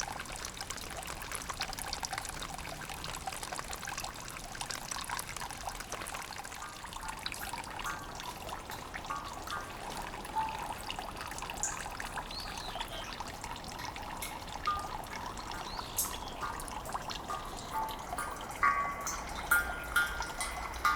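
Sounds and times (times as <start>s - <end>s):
drips splashing: 0.0s - 20.9s
water trickling: 0.0s - 20.9s
ringing drip-like notes: 7.0s - 20.9s.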